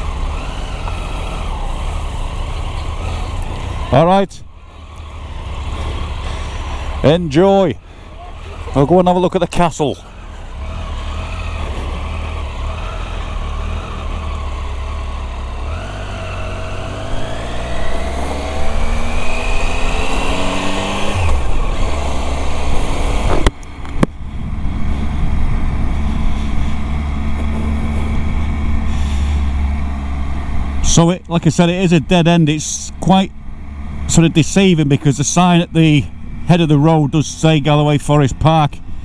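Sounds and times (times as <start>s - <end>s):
motorcycle engine accelerating: 0.0s - 39.0s
wind rumble on microphone: 22.6s - 28.9s.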